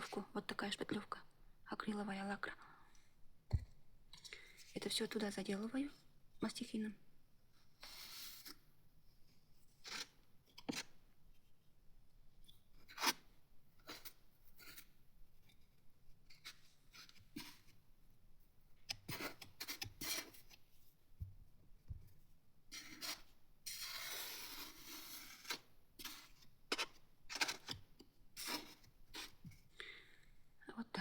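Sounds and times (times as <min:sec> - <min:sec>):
palette knife scraping and tapping: 0:18.8 - 0:20.6, 0:22.7 - 0:29.6.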